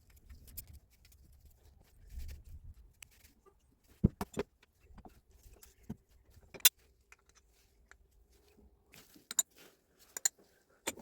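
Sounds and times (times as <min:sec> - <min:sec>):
tools and parts clicking and knocking: 0:00.0 - 0:01.5, 0:04.0 - 0:08.0, 0:09.2 - 0:11.0.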